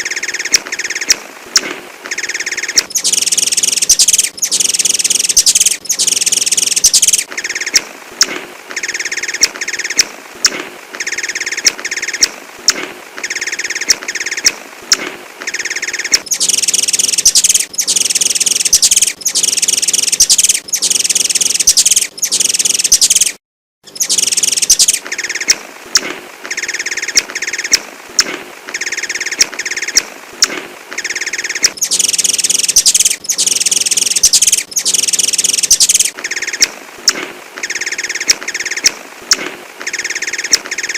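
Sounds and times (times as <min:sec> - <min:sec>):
sunbird twittering song: 0:00.0 - 0:01.2, 0:02.1 - 0:07.9, 0:15.5 - 0:25.6, 0:31.0 - 0:36.7, 0:37.6 - 0:39.0, 0:39.8 - 0:40.9
sharp bird chirps: 0:02.1 - 0:07.8, 0:15.5 - 0:25.6, 0:31.0 - 0:36.7, 0:39.9 - 0:40.9.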